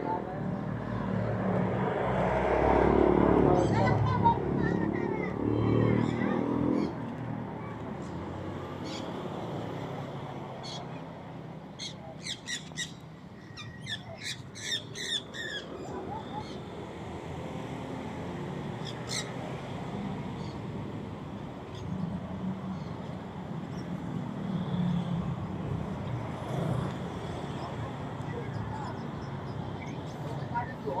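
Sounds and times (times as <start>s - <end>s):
bird squawking: 11.8s - 16.6s.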